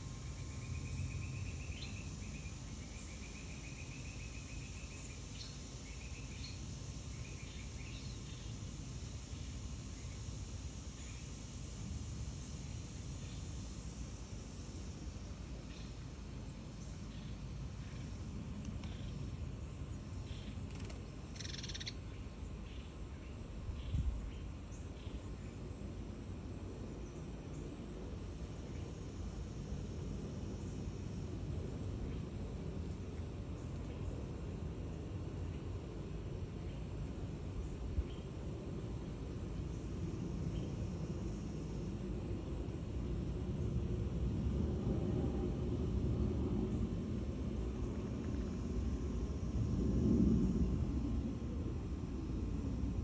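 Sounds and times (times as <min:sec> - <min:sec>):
low steady rumble: 0:00.0 - 0:53.0
small birds calling: 0:20.2 - 0:25.3
small bird trilling: 0:21.4 - 0:22.0.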